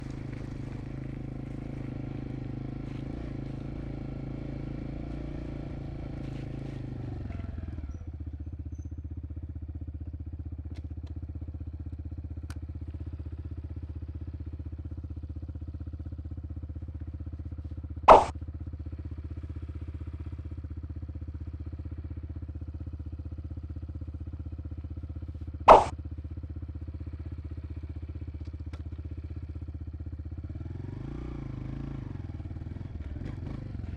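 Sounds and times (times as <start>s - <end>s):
dirt bike engine idling: 0.0s - 33.9s
sharp clicks: 18.1s - 18.3s, 25.7s - 25.9s.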